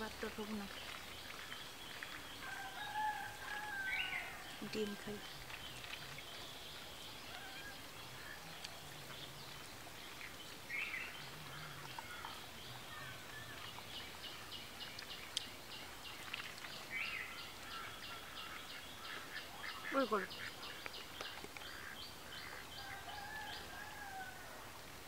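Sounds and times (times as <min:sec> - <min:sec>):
birds calling: 0:00.0 - 0:24.6
steady background hiss: 0:00.0 - 0:25.0.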